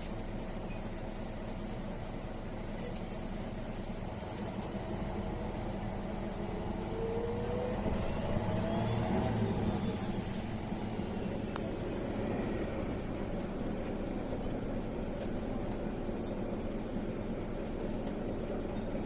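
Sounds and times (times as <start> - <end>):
bus diesel engine drone: 0.0 - 19.0
road noise: 4.2 - 19.0
rising whine: 6.6 - 16.3.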